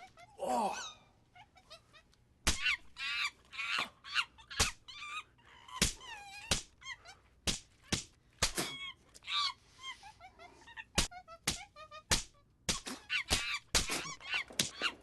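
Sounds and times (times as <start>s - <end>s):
sharp hand slaps: 5.8s - 6.7s, 7.4s - 8.8s, 11.0s - 14.9s.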